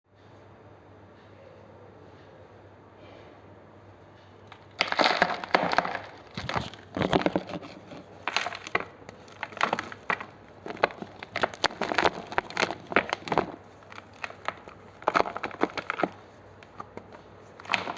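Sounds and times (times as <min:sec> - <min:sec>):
chalk crunching and crumbling: 0:04.5 - 0:17.9.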